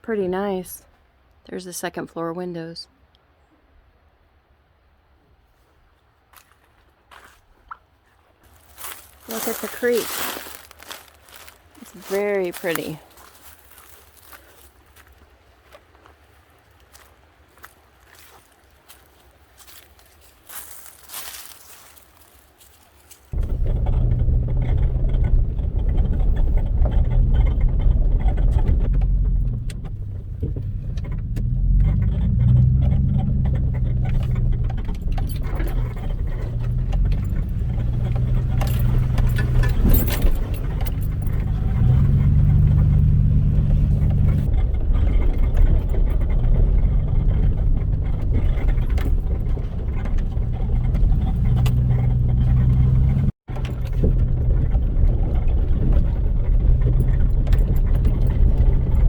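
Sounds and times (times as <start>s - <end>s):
vehicle engine driving: 8.4s - 15.1s, 16.9s - 59.0s
light rattling: 23.3s - 59.0s.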